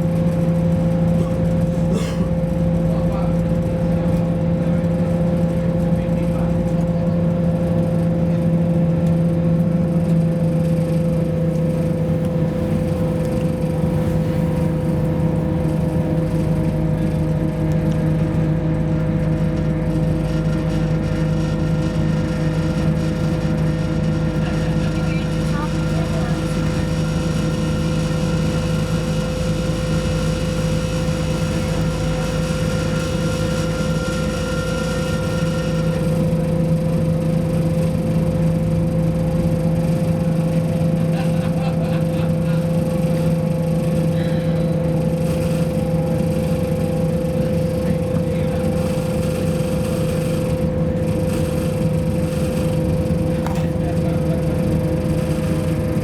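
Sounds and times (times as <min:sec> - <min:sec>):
diesel engine hum: 0:00.0 - 0:56.0
steady high whine: 0:00.0 - 0:56.0
wheels rumbling on rail: 0:00.0 - 0:56.0.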